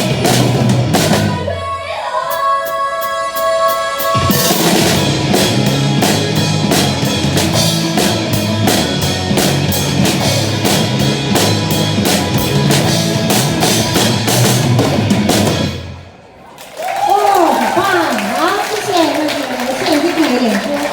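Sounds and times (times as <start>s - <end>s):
drum kit playing: 0.0s - 1.5s, 3.6s - 16.1s
rock backing track: 0.0s - 1.5s, 4.2s - 16.1s.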